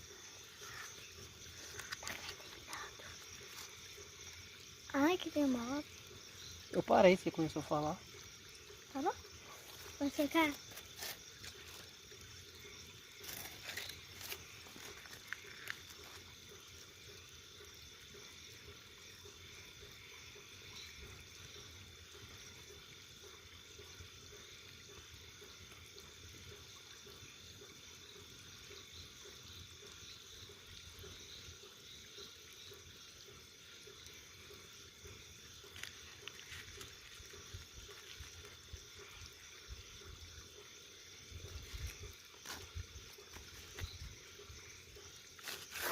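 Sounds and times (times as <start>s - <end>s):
bonfire hissing: 0.0s - 6.8s.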